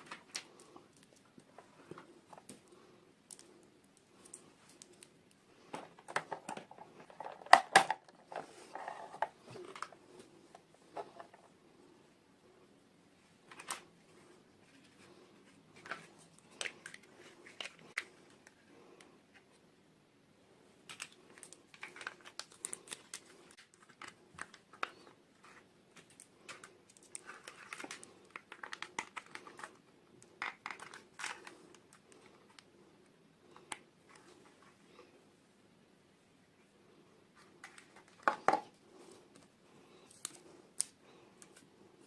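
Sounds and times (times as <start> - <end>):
plastic packaging crinkling and tearing: 20.9 - 25.0, 26.0 - 29.8.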